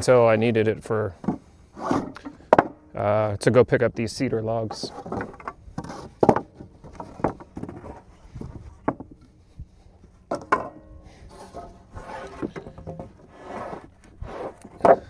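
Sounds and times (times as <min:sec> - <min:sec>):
wooden boards knocking: 0:01.2 - 0:02.9, 0:04.8 - 0:09.2, 0:10.3 - 0:10.8, 0:14.7 - 0:15.0.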